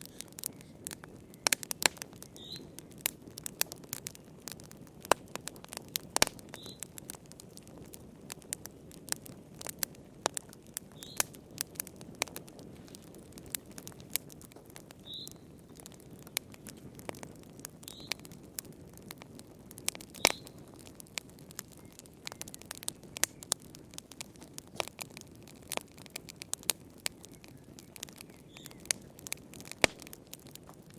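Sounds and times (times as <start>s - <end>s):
flames rushing: 0.0s - 30.9s
wood fire crackling and popping: 0.0s - 30.9s.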